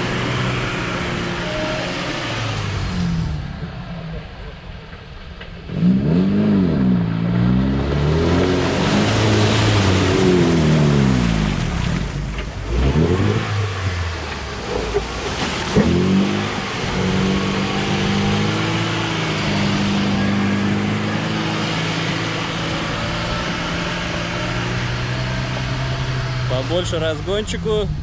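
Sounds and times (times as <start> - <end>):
off-road vehicle engine revving: 0.0 - 28.0.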